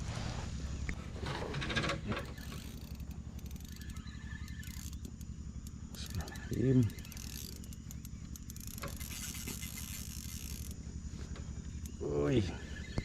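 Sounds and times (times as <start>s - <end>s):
fishing reel clicking: 2.2s - 10.8s.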